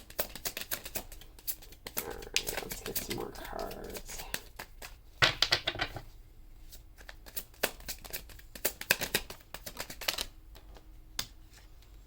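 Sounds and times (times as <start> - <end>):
cards being shuffled: 0.0 - 5.0, 6.7 - 10.3.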